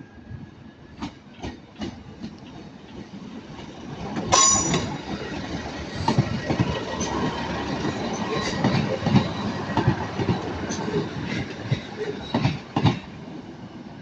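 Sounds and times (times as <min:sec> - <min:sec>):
train wheels clacking over joints: 0:04.2 - 0:13.1.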